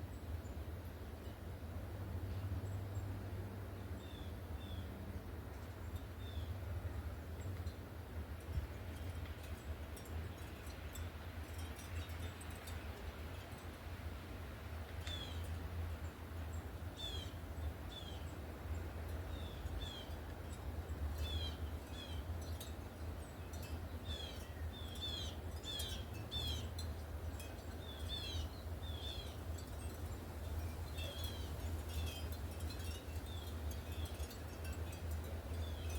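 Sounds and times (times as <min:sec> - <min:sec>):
small birds chirping: 0:21.2 - 0:34.4.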